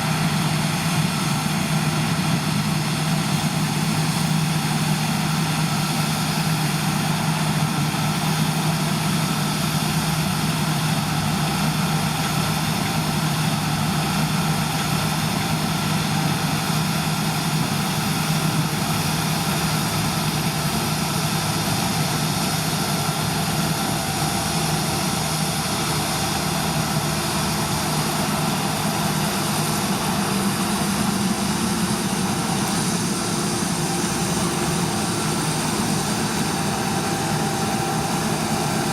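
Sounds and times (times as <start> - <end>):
diesel farm machinery running: 0.0 - 38.9.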